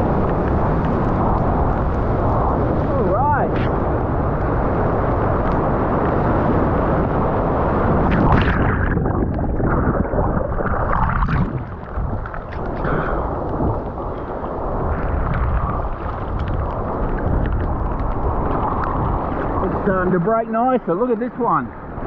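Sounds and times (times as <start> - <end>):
strong wind buffeting microphone: 0.0 - 22.0
surf: 0.0 - 22.0.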